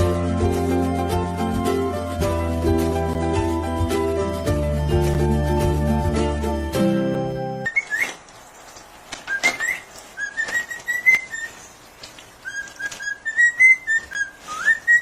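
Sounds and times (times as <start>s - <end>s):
person whistling short notes: 12.5s - 15.0s.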